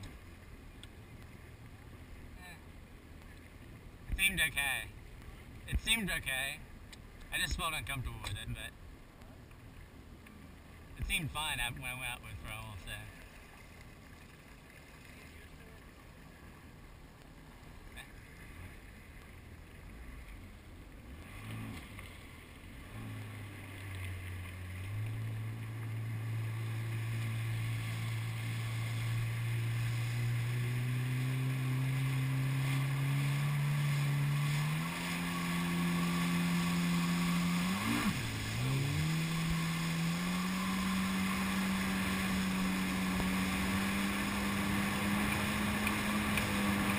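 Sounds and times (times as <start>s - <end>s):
jet ski engine revving: 17.8s - 46.9s.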